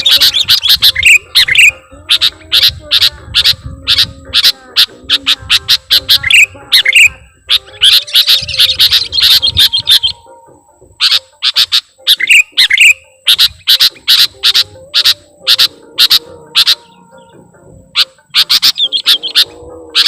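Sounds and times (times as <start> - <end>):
bulbul calling: 0.0 - 20.0.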